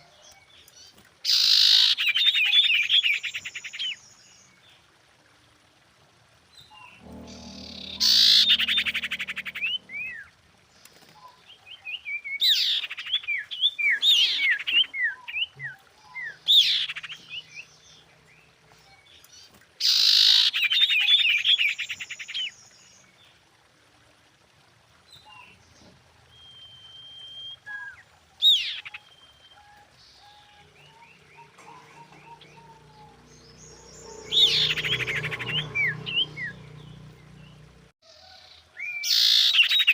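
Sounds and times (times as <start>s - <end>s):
bird trills and chirps: 26.4s - 37.7s.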